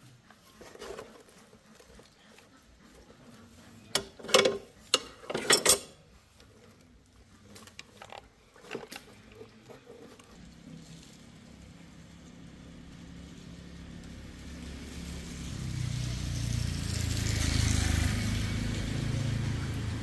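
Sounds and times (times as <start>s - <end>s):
hard parts clicking and clattering: 3.7s - 10.4s.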